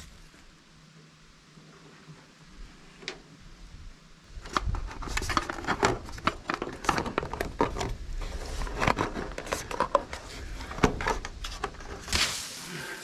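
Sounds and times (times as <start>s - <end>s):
handling clicks and rustling: 4.4s - 12.2s.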